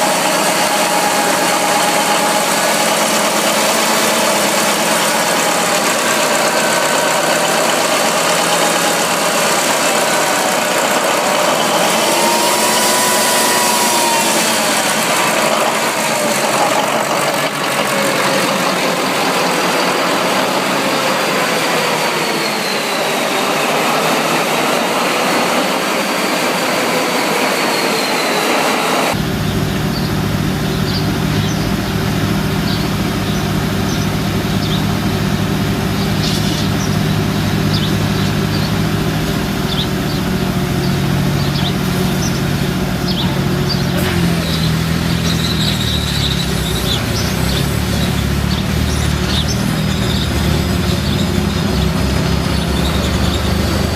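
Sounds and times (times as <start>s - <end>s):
large engine running: 0.0s - 53.9s
engine deep low rumble: 29.1s - 53.9s.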